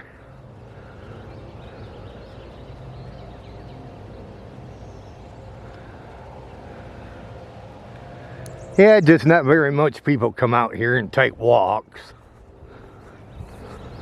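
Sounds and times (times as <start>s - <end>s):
bird chirps: 0.0s - 7.0s, 8.2s - 9.3s
steady low hum: 0.0s - 14.0s.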